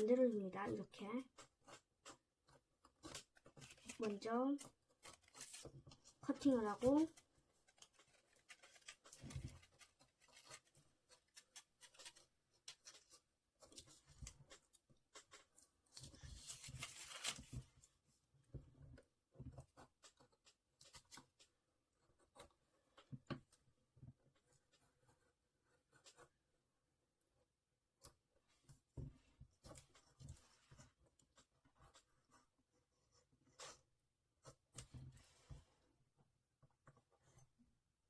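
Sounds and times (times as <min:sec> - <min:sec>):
paper rustling: 0:03.0 - 0:14.4, 0:15.4 - 0:17.9.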